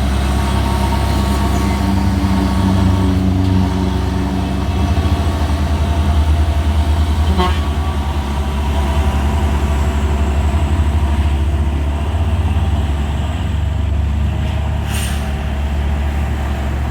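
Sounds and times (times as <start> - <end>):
truck diesel engine droning: 0.0 - 16.9
truck horn toot: 7.2 - 8.2.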